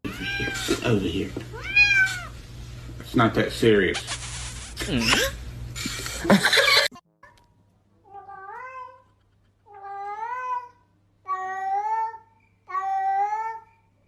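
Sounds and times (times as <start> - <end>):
cat meowing: 0.1 - 0.8, 1.5 - 2.4.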